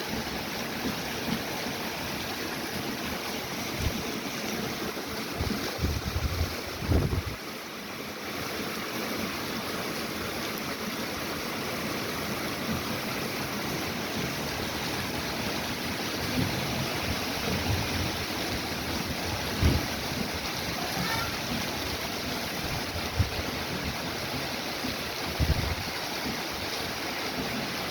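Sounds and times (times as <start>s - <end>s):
heavy rain pouring: 0.0s - 27.9s
wind thumps on microphone: 5.4s - 7.4s, 19.4s - 20.4s, 25.4s - 25.9s.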